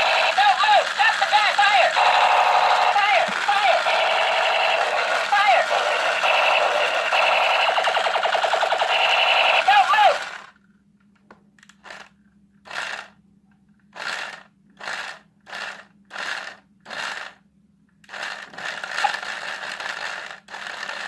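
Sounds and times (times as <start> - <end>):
toy gun hissing shots: 0.0 - 10.4.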